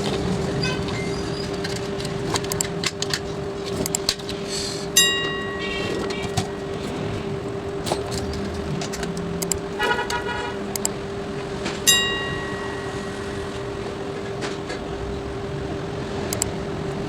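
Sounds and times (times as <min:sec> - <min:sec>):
steady hum: 0:00.0 - 0:17.0
traffic noise: 0:00.0 - 0:17.0
short car horn toot: 0:09.8 - 0:10.7.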